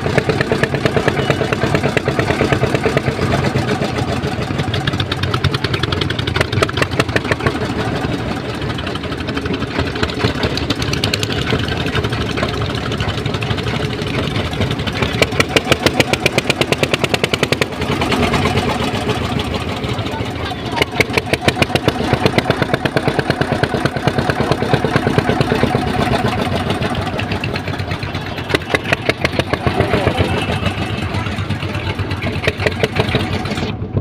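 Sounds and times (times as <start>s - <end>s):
boat diesel engine pulsing: 0.0s - 34.0s.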